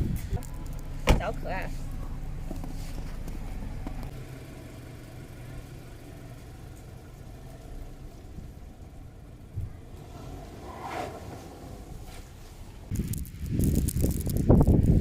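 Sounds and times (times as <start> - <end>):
car engine idling: 0.0 - 13.5
short thump: 1.0 - 1.3.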